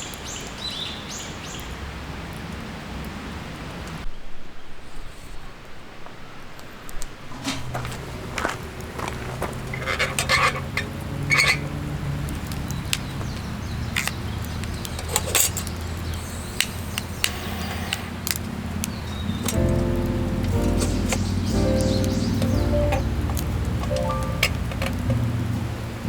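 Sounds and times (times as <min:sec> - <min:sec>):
light clicks and knocks: 0:19.4 - 0:25.7.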